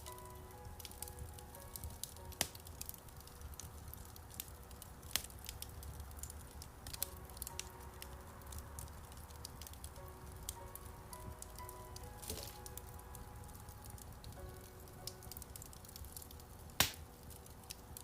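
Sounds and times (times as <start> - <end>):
soft piano music: 0.0 - 18.0
wood fire crackling: 0.0 - 18.0
sharp pops from fire: 0.8 - 10.8, 11.4 - 12.9, 15.0 - 18.0.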